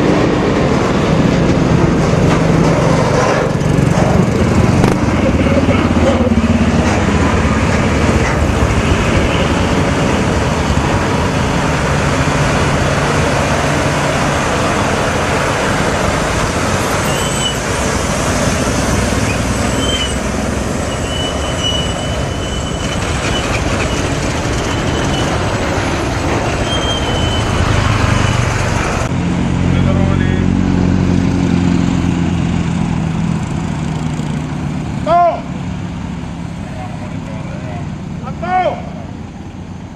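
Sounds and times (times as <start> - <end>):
road and traffic noise: 0.0 - 39.9
vehicle engine running: 1.1 - 17.0
high squeals: 17.0 - 17.7, 19.2 - 25.5, 26.4 - 28.5.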